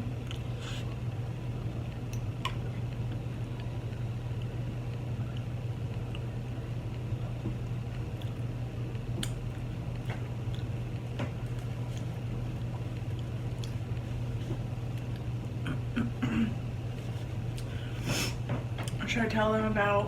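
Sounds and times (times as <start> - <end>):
steady low hum: 0.0 - 20.0
person chewing fries: 0.1 - 1.0, 1.9 - 15.8.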